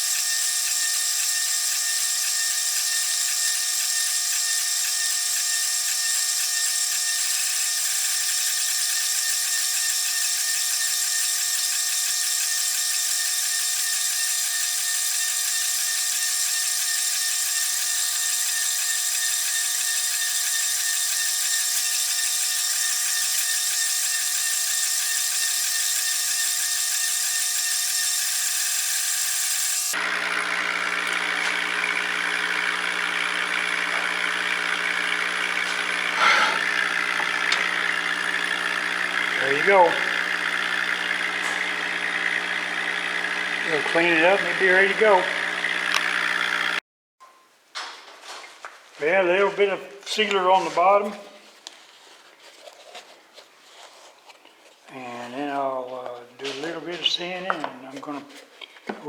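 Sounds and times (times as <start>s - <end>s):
power tool whining: 0.0s - 46.8s.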